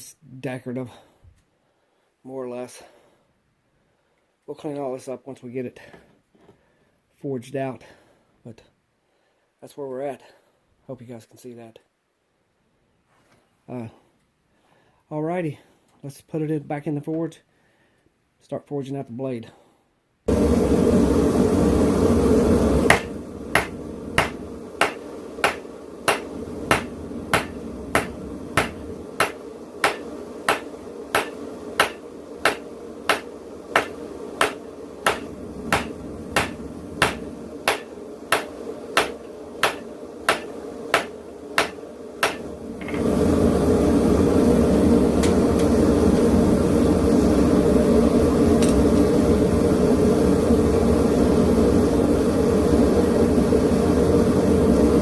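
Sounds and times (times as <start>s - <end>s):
forge burner rushing: 20.3s - 55.0s
hammer blows on metal: 22.8s - 43.0s.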